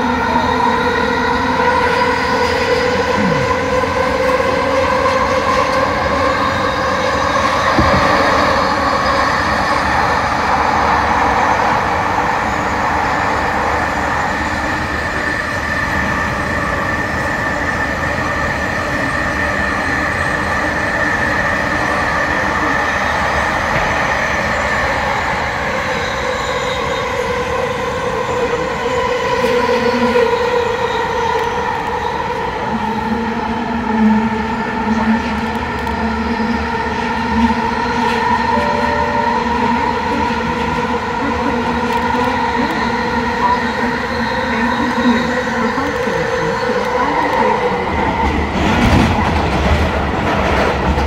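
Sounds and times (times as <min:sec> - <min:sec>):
wheels rumbling on rail: 0:00.0 - 0:51.0.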